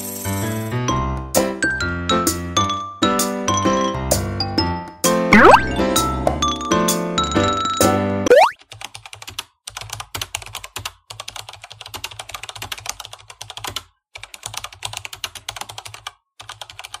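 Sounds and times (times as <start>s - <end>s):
rapid keyboard typing: 8.5s - 17.0s.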